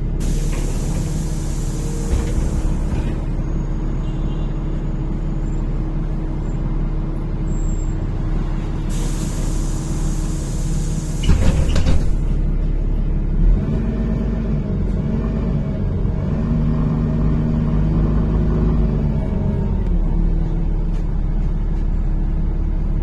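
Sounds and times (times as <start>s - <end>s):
bus engine droning: 0.0s - 23.0s
pneumatic air hissing: 0.2s - 3.1s, 8.9s - 12.3s
clatter of knocks: 11.2s - 12.4s.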